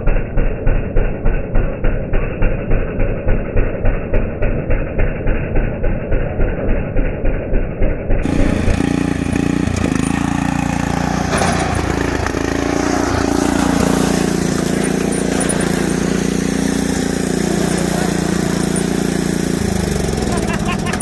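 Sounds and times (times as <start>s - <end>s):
lawnmower engine running: 8.2s - 21.0s.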